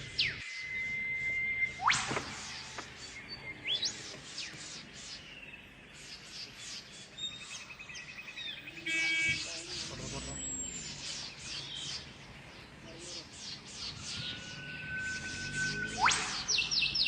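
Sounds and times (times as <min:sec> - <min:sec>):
rising bird whistles: 0:00.0 - 0:05.3, 0:13.2 - 0:17.0
buzzy bird trill: 0:00.0 - 0:17.0
high bird chirps: 0:00.0 - 0:17.0
loud pitched bird call: 0:00.0 - 0:17.0.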